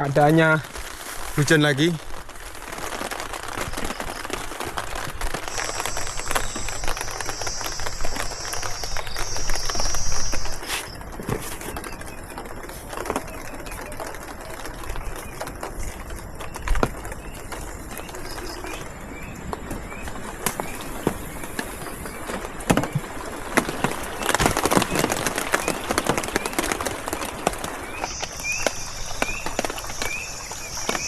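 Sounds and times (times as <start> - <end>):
rain dripping in forest: 0.0 - 31.0
small chirps: 5.2 - 12.2, 24.2 - 31.0
high insect buzz: 5.4 - 10.9, 27.9 - 31.0.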